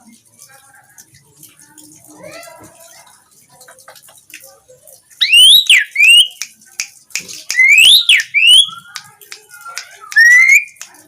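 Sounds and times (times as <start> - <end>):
starling whistled song: 5.2 - 6.4, 7.5 - 9.1, 9.9 - 10.8
bird sharp clicks: 5.6 - 10.9.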